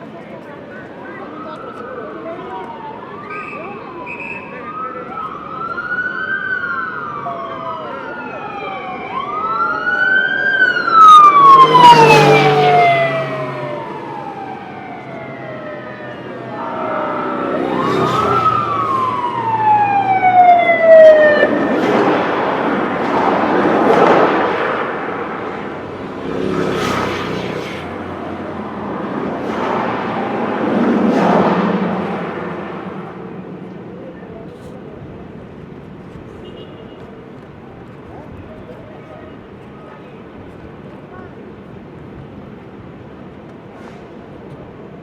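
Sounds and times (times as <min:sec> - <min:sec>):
rush of passing vehicles: 0:00.0 - 0:45.0
police sirens wailing: 0:00.1 - 0:35.5.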